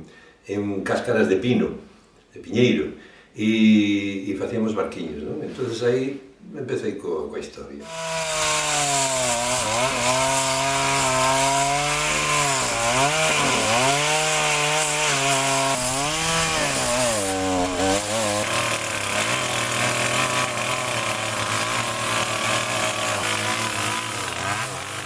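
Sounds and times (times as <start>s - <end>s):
chainsaw cutting wood: 7.8s - 25.0s.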